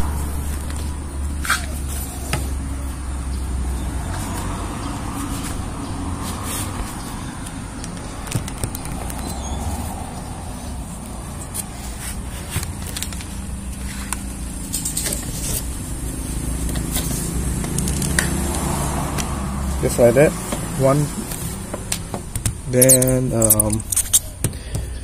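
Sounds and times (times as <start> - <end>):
steady low rumble: 0.0 - 1.9.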